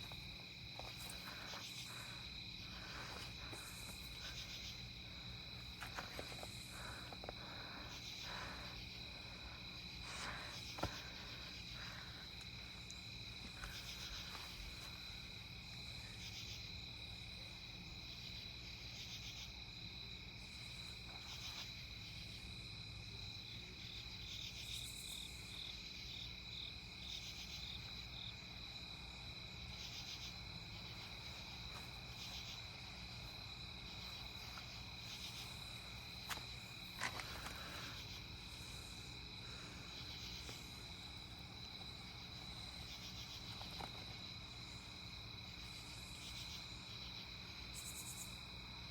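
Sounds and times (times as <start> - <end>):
crickets chirping: 0.0 - 48.9.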